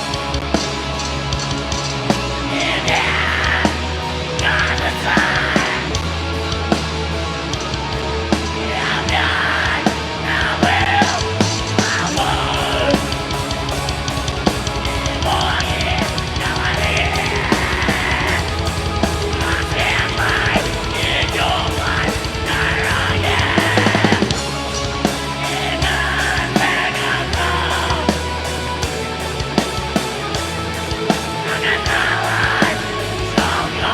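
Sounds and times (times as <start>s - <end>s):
heavy metal band playing: 0.0s - 33.9s
drum fill: 10.6s - 33.9s.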